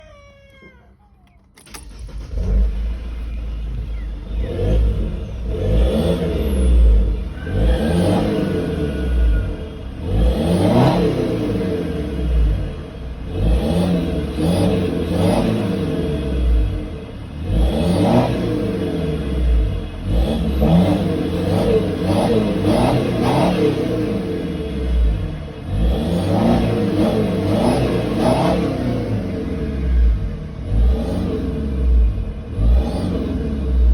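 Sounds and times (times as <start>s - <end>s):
diesel engine revving: 1.6s - 33.9s
turbo whistling: 7.1s - 10.1s.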